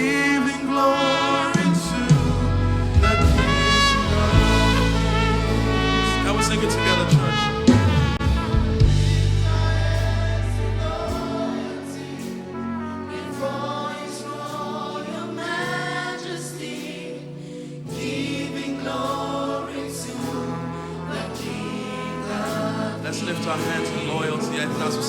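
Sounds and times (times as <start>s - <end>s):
band accompaniment: 0.0s - 14.7s
group singing gospel chorus: 0.0s - 25.0s
held low bass chord: 1.5s - 11.4s.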